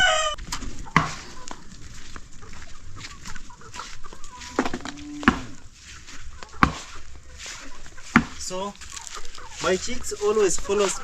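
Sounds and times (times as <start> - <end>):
chickens clucking: 0.0 - 11.0
sharp knocks: 8.1 - 8.4.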